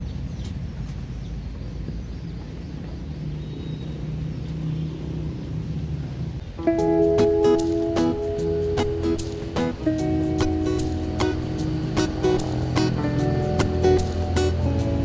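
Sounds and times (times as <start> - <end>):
low outdoor rumble: 0.0 - 15.0
acoustic guitar music: 6.6 - 15.0.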